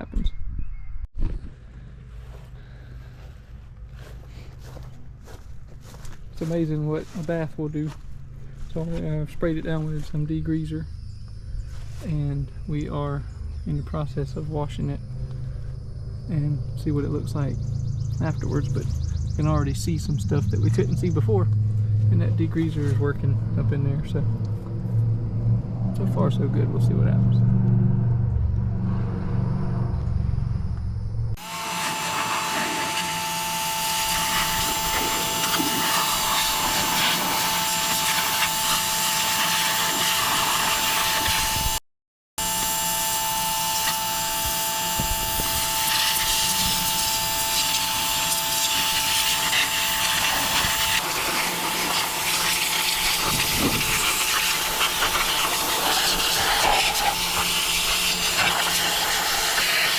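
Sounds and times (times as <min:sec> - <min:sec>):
low hum: 0:00.3 - 0:41.8, 0:42.4 - 0:58.5
pressure washer whine: 0:31.4 - 0:41.8, 0:42.4 - 0:59.9
water jet hissing on metal: 0:31.8 - 0:41.5, 0:45.4 - 0:59.9.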